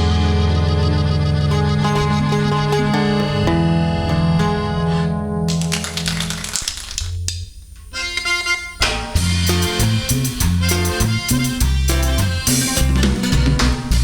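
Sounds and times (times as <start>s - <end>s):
band playing cumbia: 0.0s - 3.4s, 8.0s - 14.0s.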